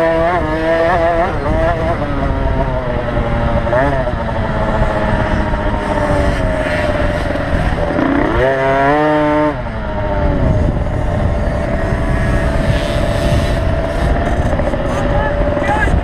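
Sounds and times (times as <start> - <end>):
motocross bike engines: 0.0 - 16.0
motorbike revving with rising whine: 0.0 - 16.0.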